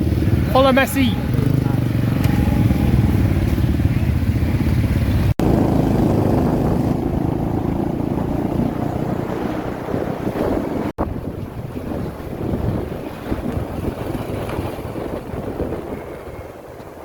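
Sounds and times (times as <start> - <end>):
engine running: 0.0 - 11.0
wind buffeting microphone: 0.0 - 17.0.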